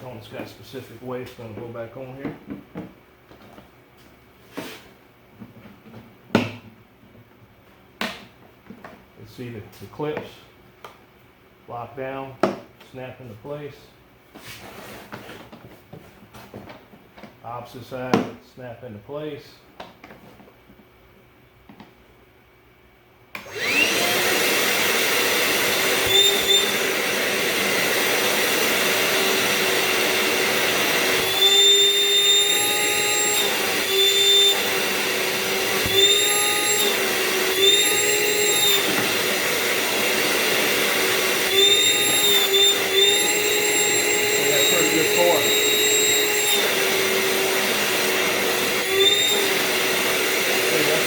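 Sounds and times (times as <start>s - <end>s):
shop vacuum motor whine: 23.3s - 51.0s.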